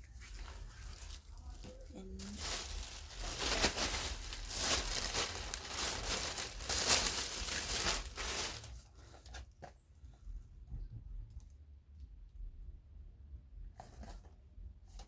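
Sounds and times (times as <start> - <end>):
packaging crinkling: 0.2 - 8.8.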